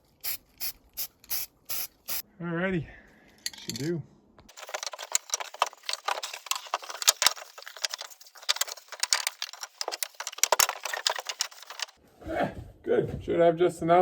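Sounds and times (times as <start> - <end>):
metal screws rattling and clinking: 4.5 - 12.0.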